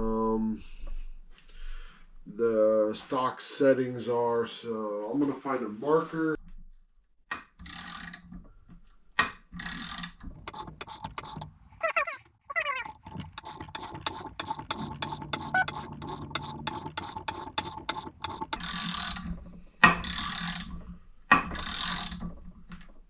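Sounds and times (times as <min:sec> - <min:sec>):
scratchy rubbing: 0:10.4 - 0:18.6.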